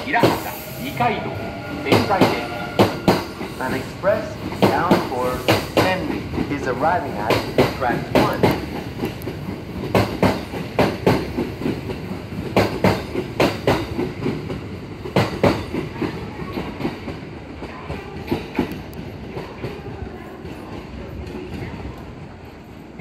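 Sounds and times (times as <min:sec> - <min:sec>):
train rumble: 0:00.0 - 0:23.0
train wheels clacking over joints: 0:01.9 - 0:19.8.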